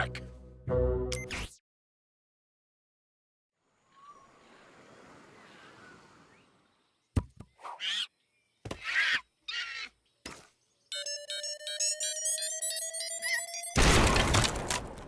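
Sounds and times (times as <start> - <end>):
music: 0.0 - 1.4.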